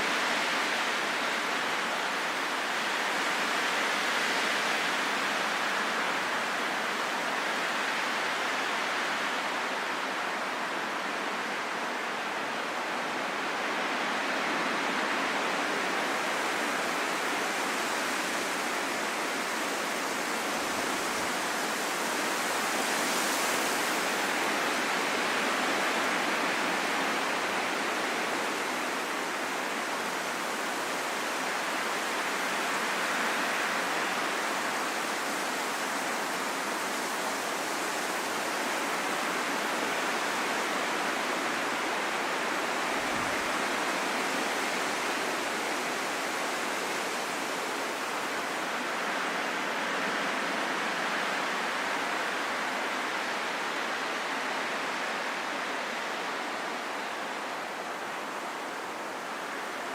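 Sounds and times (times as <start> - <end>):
wind blowing: 27.5 - 59.9.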